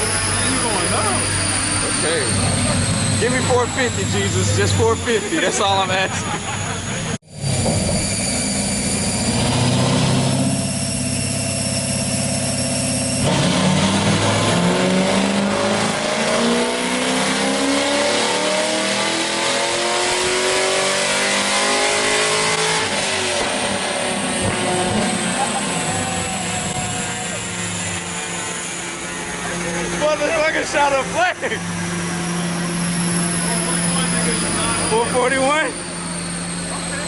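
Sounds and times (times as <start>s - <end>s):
car engine revving on dynamometer: 0.0s - 37.0s.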